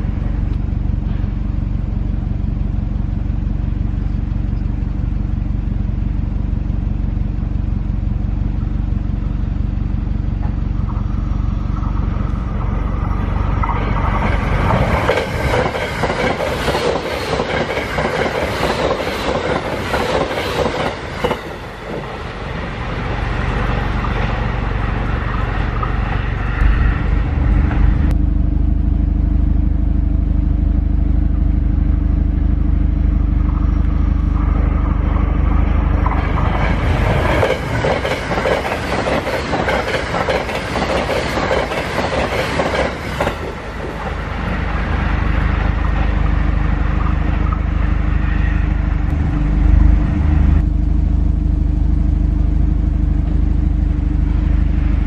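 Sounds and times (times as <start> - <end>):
steady low rumble: 0.0 - 55.0
train passing at speed: 10.1 - 28.2, 33.1 - 51.4, 52.2 - 55.0.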